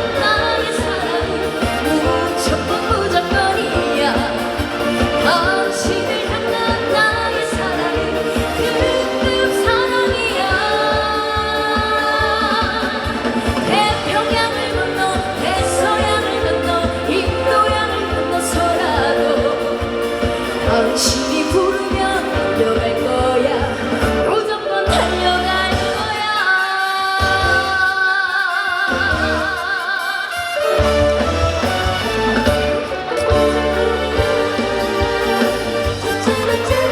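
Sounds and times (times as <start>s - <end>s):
woman singing: 0.0s - 30.9s, 32.8s - 36.9s.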